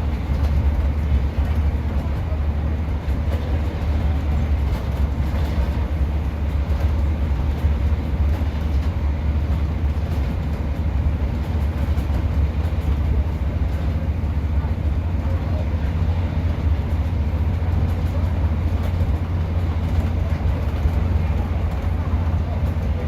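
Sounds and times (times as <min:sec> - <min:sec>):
diesel engine drone: 0:00.0 - 0:23.0
train running noise: 0:00.0 - 0:23.0.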